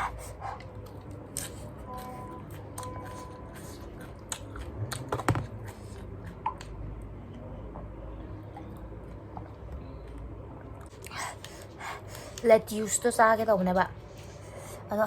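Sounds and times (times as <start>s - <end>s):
raw cabbage crunching: 0.8s - 6.8s.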